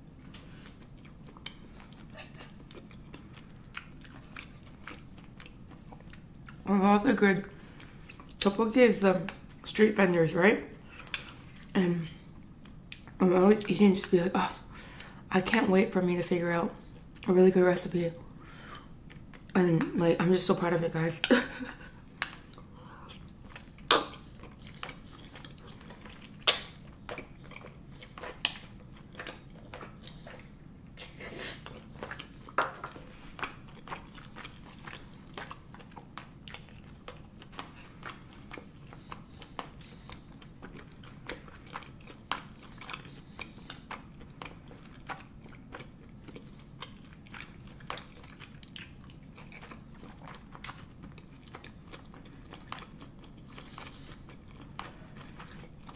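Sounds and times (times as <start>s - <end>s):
wet chewing mouth clicks: 22.2s - 32.3s.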